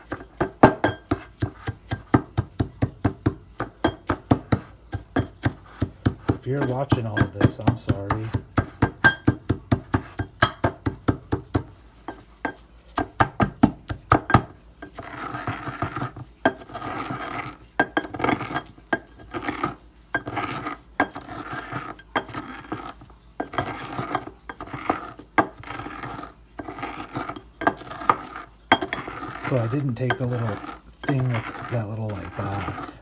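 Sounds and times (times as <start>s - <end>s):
pestle grinding in a bowl: 0.0s - 33.0s
eggshells cracking in a mortar: 13.0s - 33.0s.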